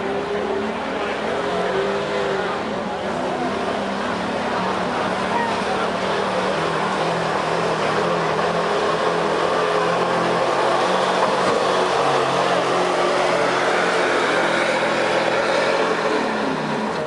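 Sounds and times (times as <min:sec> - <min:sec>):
truck engine at high revs: 0:00.0 - 0:17.0.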